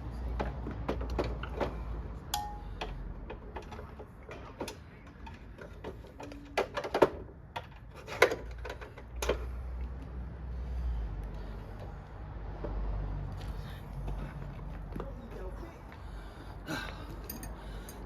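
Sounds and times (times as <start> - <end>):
metal clicks and knocks: 0.4 - 9.6.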